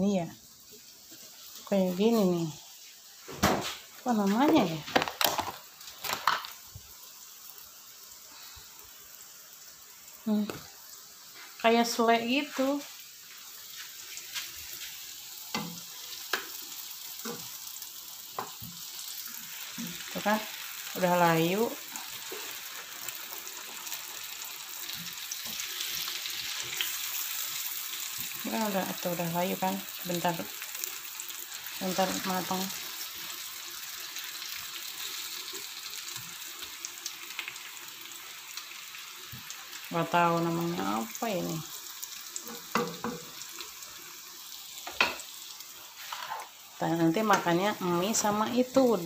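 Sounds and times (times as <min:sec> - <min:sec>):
food sizzling in oil: 0:00.0 - 0:49.0.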